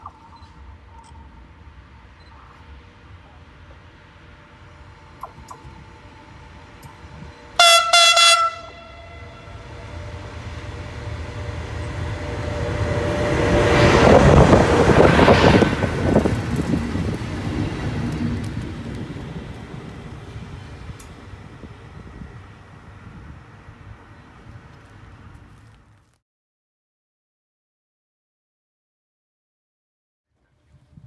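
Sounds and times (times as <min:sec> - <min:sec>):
train rumble and wheel clatter: 0:00.0 - 0:26.1
locomotive horn toots: 0:07.6 - 0:13.3.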